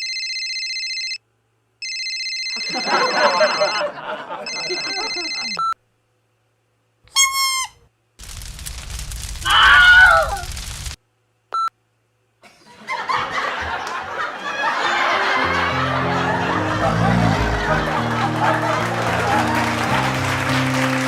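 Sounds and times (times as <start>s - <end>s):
laughter: 2.6s - 5.6s, 12.4s - 20.9s
high wavering cry: 9.4s - 10.5s
loud scream: 9.4s - 10.5s
noisy commotion: 15.0s - 21.0s.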